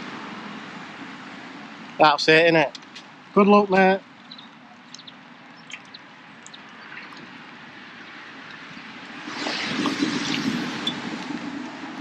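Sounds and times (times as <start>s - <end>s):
traffic hum: 0.0s - 12.0s
faint ticks or drips: 4.2s - 7.3s.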